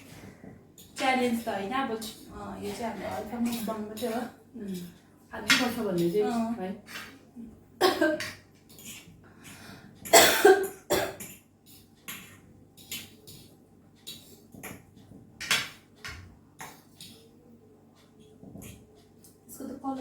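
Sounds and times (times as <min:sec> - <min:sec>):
woman coughing: 0:07.8 - 0:08.2, 0:10.1 - 0:11.2.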